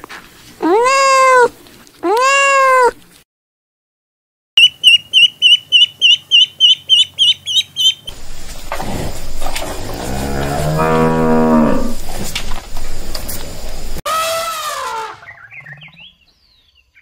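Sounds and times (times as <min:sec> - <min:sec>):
cat meowing: 0:00.6 - 0:03.0
ducklings peeping: 0:04.6 - 0:08.1
cow mooing: 0:09.8 - 0:12.0.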